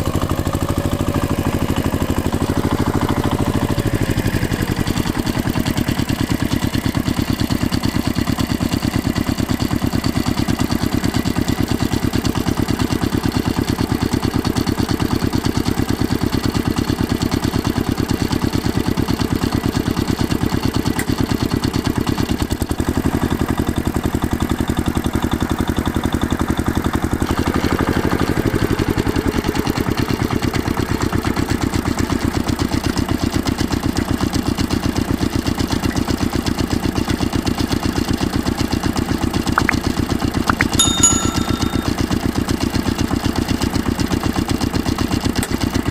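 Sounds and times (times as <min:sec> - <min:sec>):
brief falling tone: 0:40.5 - 0:42.0.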